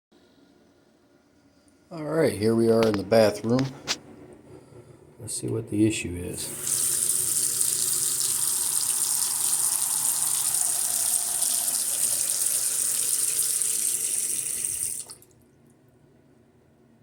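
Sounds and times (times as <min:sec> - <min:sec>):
faucet running into sink: 0:06.4 - 0:15.2.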